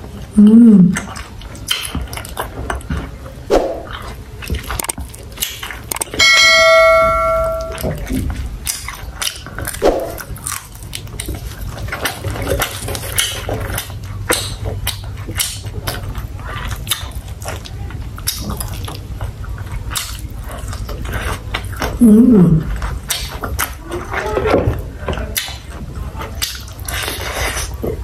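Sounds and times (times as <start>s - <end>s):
steady low hum: 0.0s - 1.2s, 6.1s - 8.7s
chewing and crunching food: 1.0s - 6.2s, 7.8s - 22.0s, 22.6s - 28.0s.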